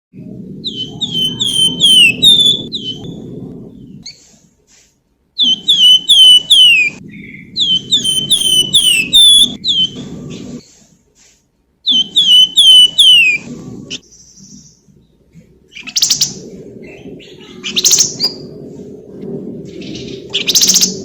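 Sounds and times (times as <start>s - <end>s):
low rumbling noise: 0.1s - 11.1s, 11.7s - 21.0s
songbird whistling: 0.6s - 3.2s, 5.4s - 10.0s, 11.9s - 13.5s.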